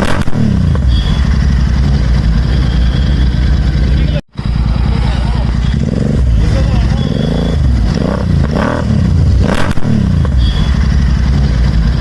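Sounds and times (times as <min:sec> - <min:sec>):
exhaust crack: 0:00.0 - 0:12.0
motorcycle engine revving: 0:00.0 - 0:12.0.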